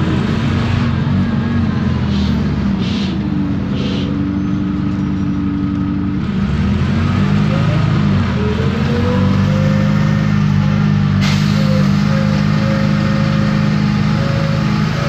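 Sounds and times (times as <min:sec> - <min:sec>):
bus diesel engine running: 0:00.0 - 0:15.0
short air hisses: 0:11.2 - 0:11.7.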